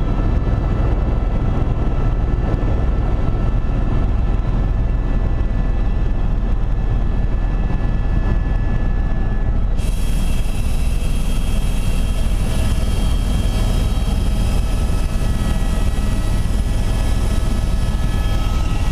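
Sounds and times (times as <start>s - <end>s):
helicopter drone: 0.0s - 18.9s
high whining tones: 8.3s - 18.9s.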